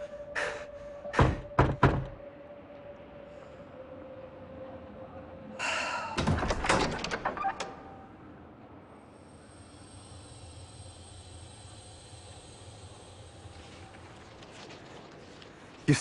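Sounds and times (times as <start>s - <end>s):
door knocks and clicks: 1.2s - 2.2s
door creaking open: 6.1s - 8.0s.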